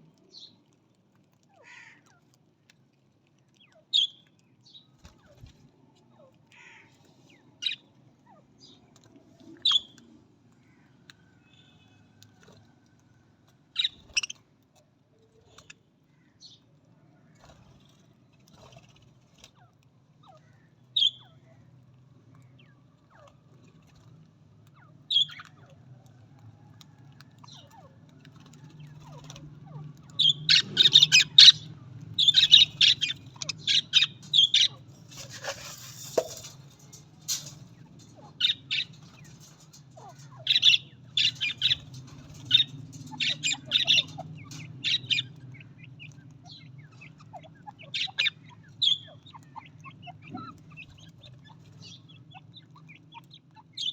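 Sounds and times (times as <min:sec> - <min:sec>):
budgerigars chirping: 0:09.6 - 0:09.9, 0:13.8 - 0:14.4, 0:24.8 - 0:25.6, 0:28.9 - 0:53.9.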